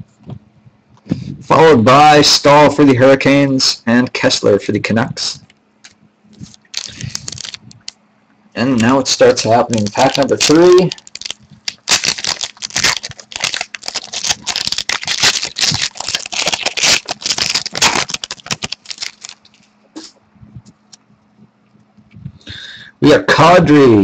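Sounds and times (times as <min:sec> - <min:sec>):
wrapper tearing and crinkling: 0:05.8 - 0:07.9, 0:08.8 - 0:19.7.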